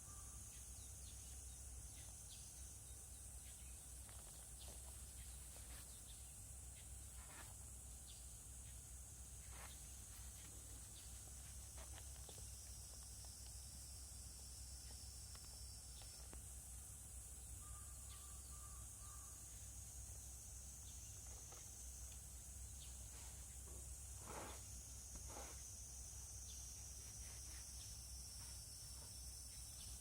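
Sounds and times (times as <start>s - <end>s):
high-pitched insect drone: 0.0s - 4.4s, 11.4s - 30.0s.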